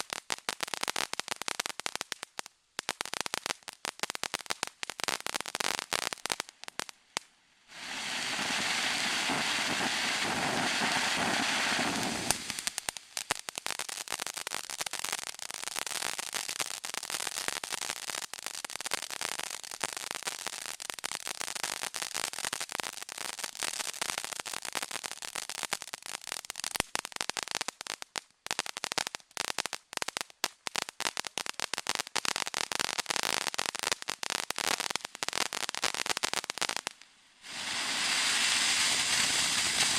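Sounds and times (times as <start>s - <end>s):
firework crackling: 0.0s - 39.9s
hiss of spraying sparks: 7.7s - 13.6s, 34.5s - 39.9s.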